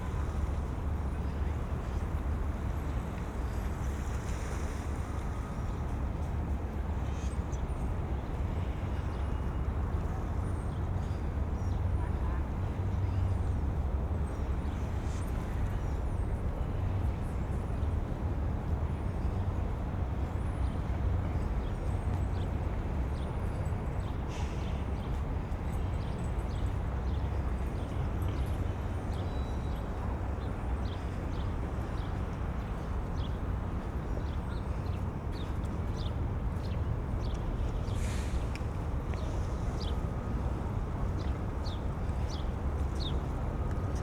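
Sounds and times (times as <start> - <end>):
city ambience: 0.0 - 44.0.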